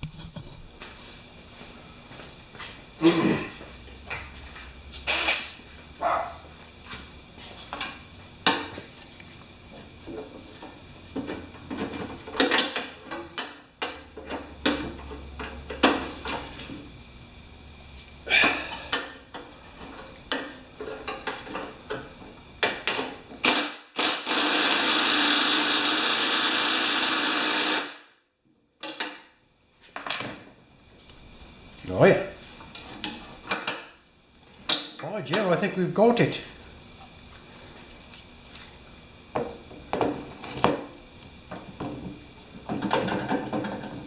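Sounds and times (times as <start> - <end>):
loud steady hiss: 4.8 - 5.8, 23.3 - 28.1.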